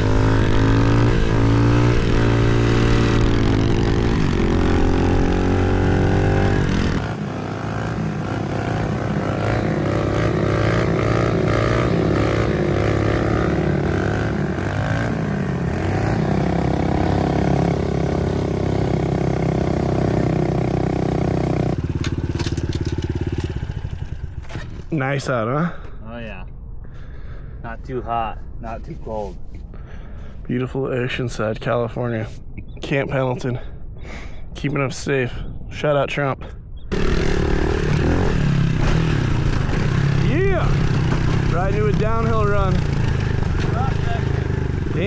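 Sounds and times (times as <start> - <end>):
pit bike engines revving: 0.0 - 24.7, 36.9 - 45.0.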